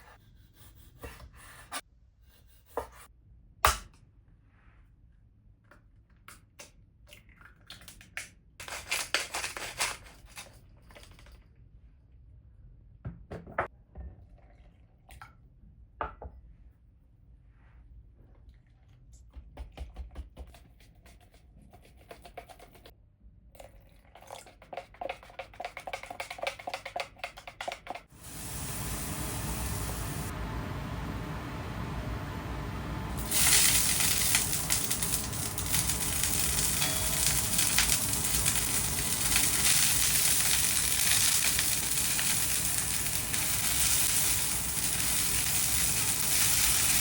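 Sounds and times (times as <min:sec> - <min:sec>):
steady hiss: 0:28.2 - 0:47.0.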